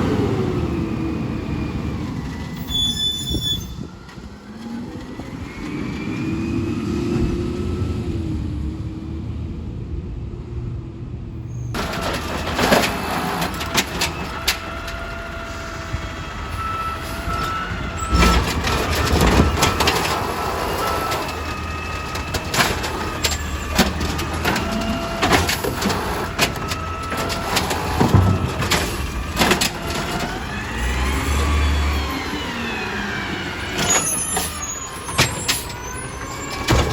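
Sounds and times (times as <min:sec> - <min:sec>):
garbage truck engine running: 0:11.7 - 0:36.9
metal clanks and knocks: 0:11.8 - 0:15.0, 0:17.0 - 0:30.6, 0:36.5 - 0:36.9.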